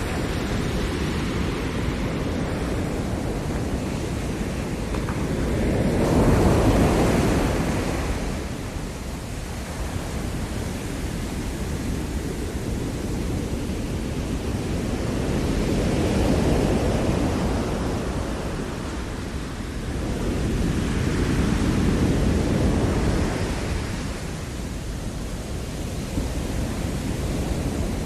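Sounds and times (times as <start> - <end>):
ocean surf breaking: 0.0 - 28.0.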